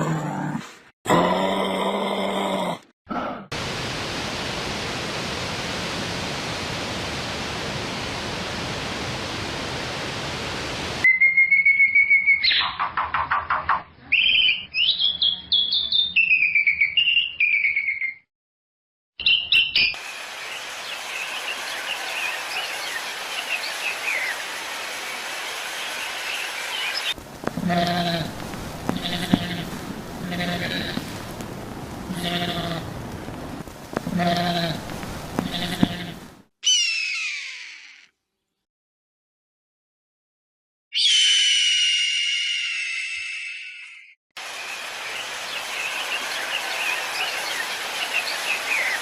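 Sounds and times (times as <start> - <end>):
steady hiss: 20.0 - 36.0.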